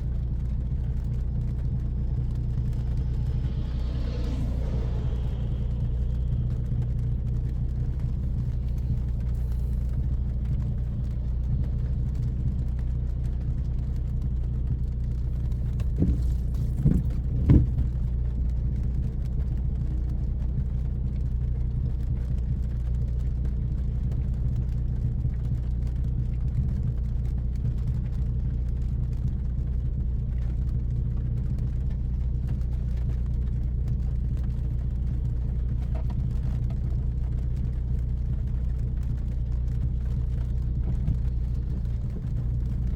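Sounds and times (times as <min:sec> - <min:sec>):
car engine cruising: 0:00.0 - 0:42.9
short knocks: 0:15.8 - 0:17.9.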